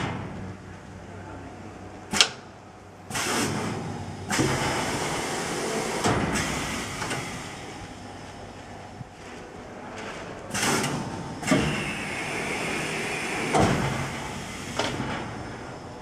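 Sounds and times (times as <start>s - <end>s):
machine hum: 0.0s - 16.0s
machine hiss: 10.5s - 15.1s.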